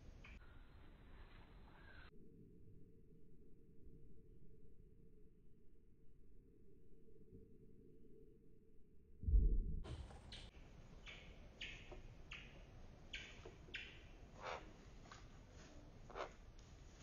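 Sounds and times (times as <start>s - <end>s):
bird landing thump: 9.3s - 10.5s.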